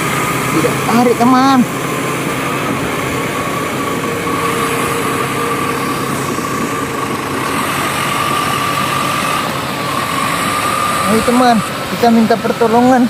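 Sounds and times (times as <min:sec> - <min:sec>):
toy motor whirring: 0:04.2 - 0:11.7.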